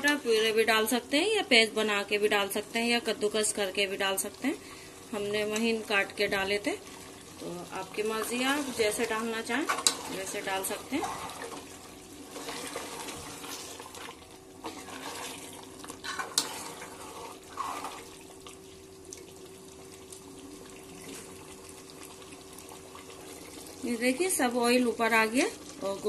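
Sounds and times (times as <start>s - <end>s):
meat sizzling in a pot: 0.0s - 26.0s
ladle stirring: 7.8s - 18.6s.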